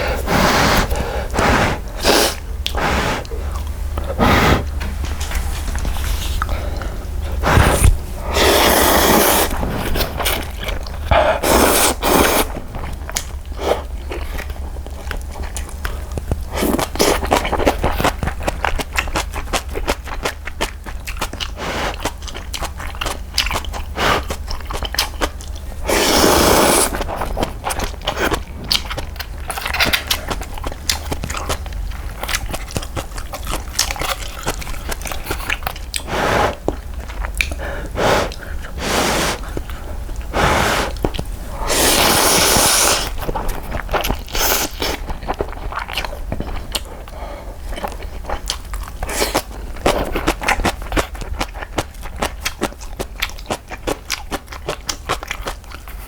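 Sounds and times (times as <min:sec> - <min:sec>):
loud slurps: 0:00.0 - 0:04.8, 0:07.3 - 0:12.6, 0:25.8 - 0:27.4, 0:36.0 - 0:36.6, 0:38.0 - 0:43.5, 0:44.2 - 0:45.1
chewing with wet crunches: 0:00.0 - 0:56.0.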